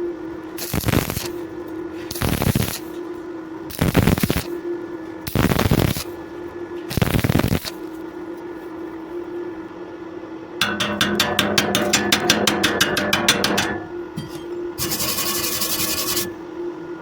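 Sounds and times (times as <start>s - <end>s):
steady hum: 0.0s - 17.0s
welding arc crackling: 0.6s - 1.4s, 2.1s - 3.0s, 3.7s - 4.6s, 5.2s - 6.2s, 6.9s - 7.9s, 14.8s - 16.4s.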